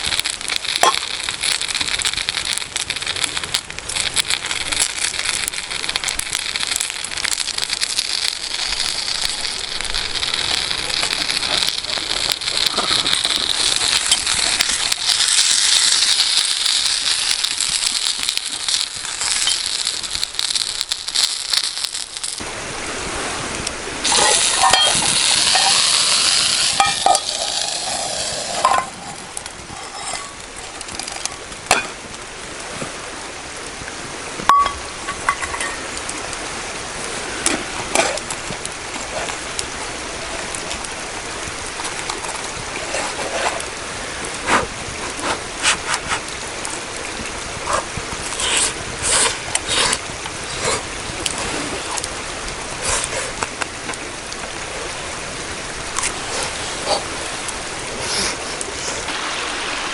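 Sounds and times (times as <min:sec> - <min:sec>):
food sizzling in a frying pan: 0:00.0 - 0:22.4, 0:24.0 - 0:32.0.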